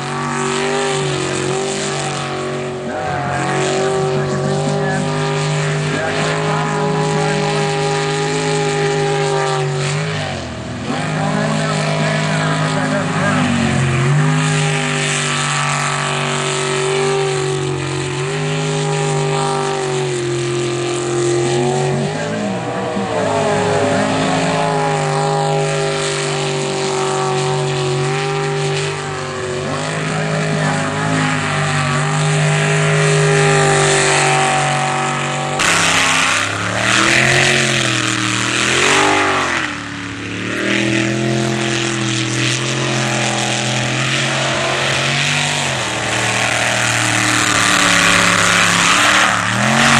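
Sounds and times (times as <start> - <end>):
jet boat engine running hard: 0.0 - 49.9.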